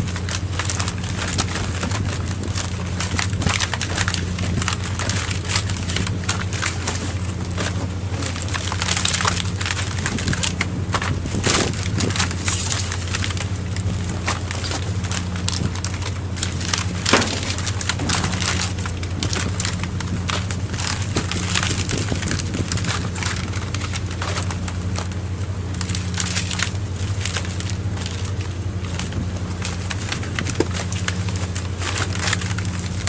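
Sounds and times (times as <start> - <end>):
boat engine humming: 0.0 - 33.0
irregular clicks and crackles: 0.0 - 33.0.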